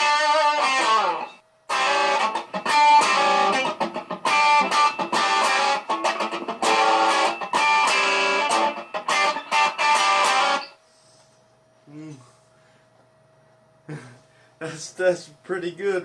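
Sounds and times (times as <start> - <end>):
electric guitar through amplifier: 0.0 - 10.8.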